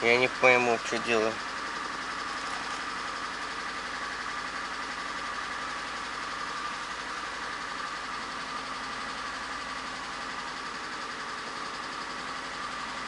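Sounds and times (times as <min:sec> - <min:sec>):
engine idling with rhythmic knock: 0:00.0 - 0:13.0.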